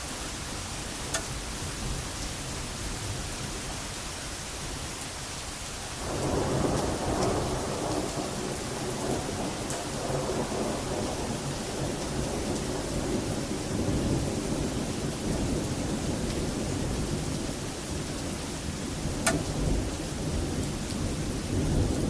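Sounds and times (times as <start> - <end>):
rain falling: 0.0 - 22.0
thunder rolling: 6.0 - 16.8.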